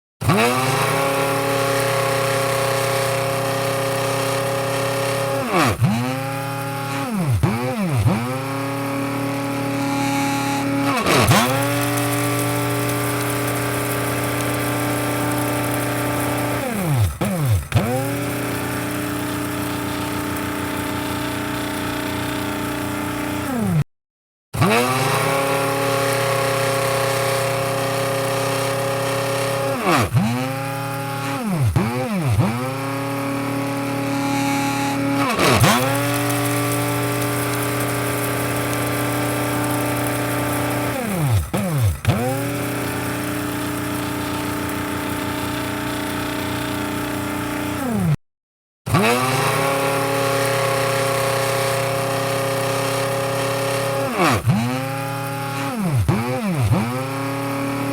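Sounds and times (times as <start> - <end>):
coffee grinder motor whining: 0.2 - 23.8, 24.6 - 48.2, 48.9 - 57.9.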